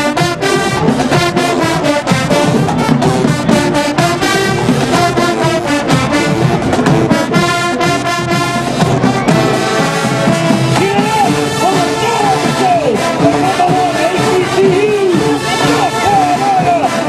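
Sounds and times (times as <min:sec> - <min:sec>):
marching band playing: 0:00.0 - 0:17.0.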